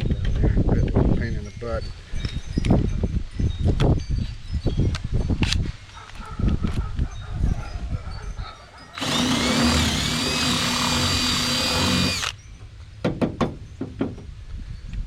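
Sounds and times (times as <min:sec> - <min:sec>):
power drill boring wood: 0:09.0 - 0:12.4.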